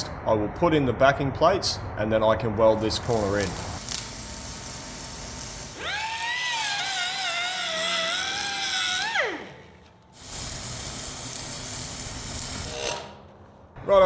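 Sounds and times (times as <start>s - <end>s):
high-speed grinder whining: 3.2s - 13.1s.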